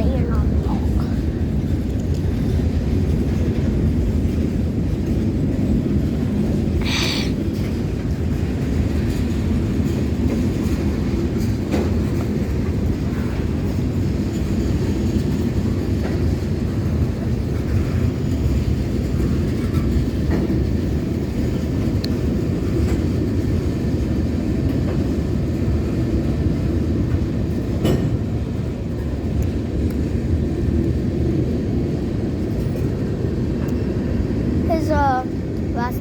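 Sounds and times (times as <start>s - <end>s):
freight train cars rumbling: 0.0s - 36.0s.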